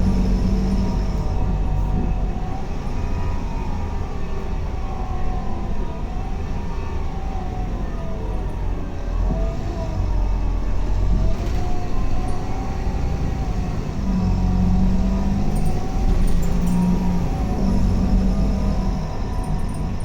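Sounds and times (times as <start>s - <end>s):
bus engine rumble with whine: 0.0s - 20.0s.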